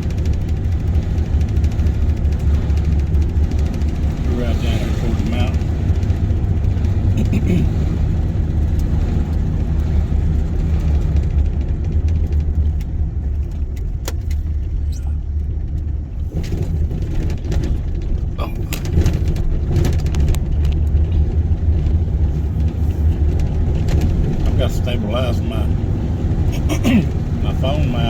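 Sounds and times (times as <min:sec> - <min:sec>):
road and engine rumble: 0:00.0 - 0:28.0
rattles and knocks: 0:08.7 - 0:24.6.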